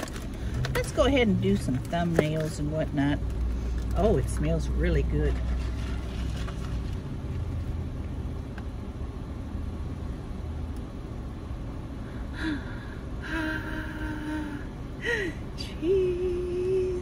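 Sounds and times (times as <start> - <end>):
car idling rumble: 0.0 - 17.0.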